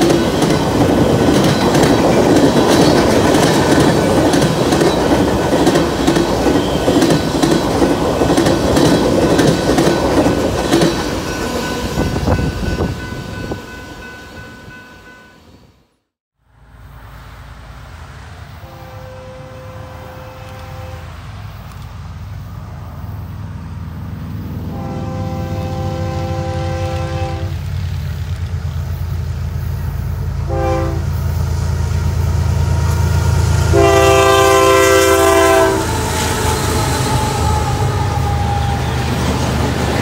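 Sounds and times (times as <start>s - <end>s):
train air horn blasts: 18.6s - 21.2s, 24.6s - 27.6s, 30.4s - 31.2s, 33.6s - 39.2s.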